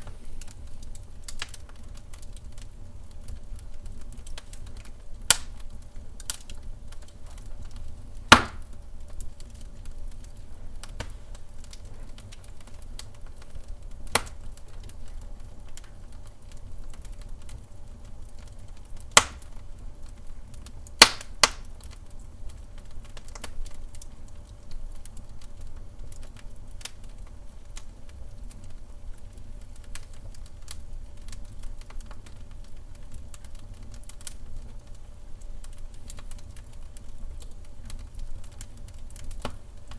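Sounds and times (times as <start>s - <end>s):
sharp fire pops: 0.0s - 16.3s, 18.4s - 24.1s, 35.6s - 39.9s
wood fire crackling: 0.0s - 39.9s.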